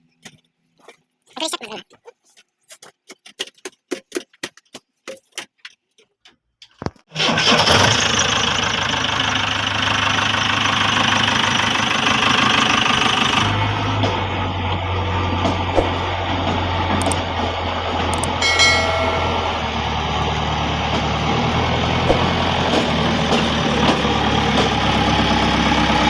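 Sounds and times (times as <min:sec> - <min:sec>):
diesel engine running: 0:07.1 - 0:26.0
sharp clicks: 0:17.0 - 0:17.2, 0:18.1 - 0:18.4.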